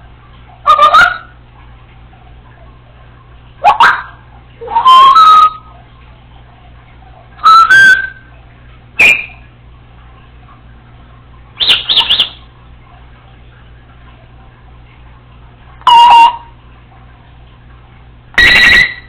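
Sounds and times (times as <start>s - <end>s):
parrot whistling and calling: 0.6s - 1.3s, 3.6s - 5.7s, 7.4s - 8.3s, 9.0s - 9.5s, 11.6s - 12.5s, 15.8s - 16.5s, 18.4s - 19.0s.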